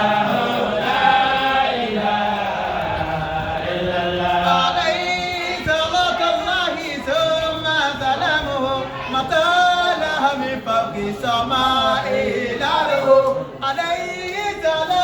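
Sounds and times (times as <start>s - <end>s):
voices singing a chant: 0.0s - 15.0s.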